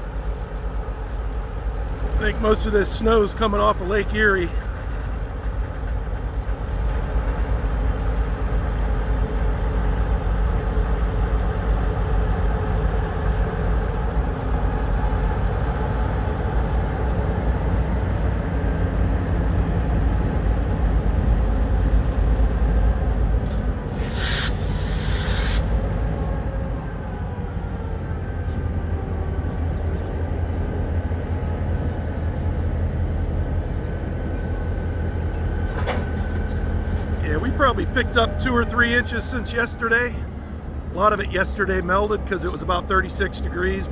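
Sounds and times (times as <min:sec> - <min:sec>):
diesel locomotive rumbling: 0:00.0 - 0:43.9
air hiss: 0:23.5 - 0:25.8.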